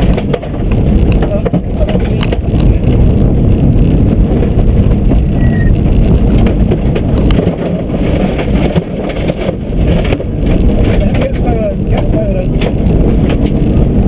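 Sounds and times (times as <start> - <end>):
car knocks and rattles: 0.0 - 3.2, 5.8 - 13.8
road noise: 0.0 - 14.0.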